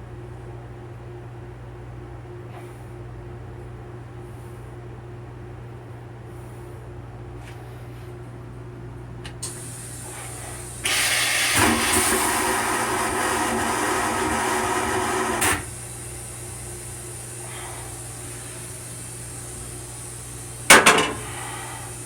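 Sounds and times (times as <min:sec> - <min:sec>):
toilet flushing rush of water: 0:09.4 - 0:22.0.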